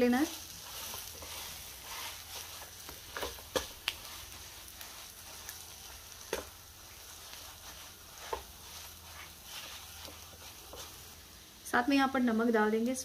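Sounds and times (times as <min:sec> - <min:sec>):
soft sizzle in oil: 0:00.0 - 0:13.0
utensil scraping and knocking pan: 0:00.6 - 0:11.0.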